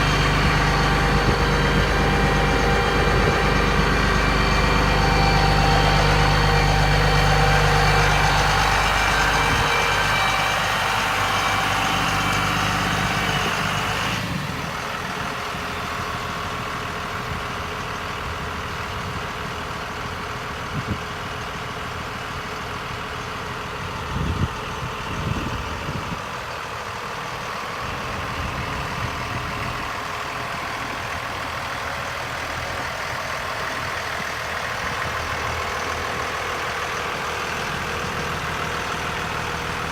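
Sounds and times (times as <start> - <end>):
machine running with whining tones: 0.0 - 14.5
truck engine idling: 0.0 - 39.9.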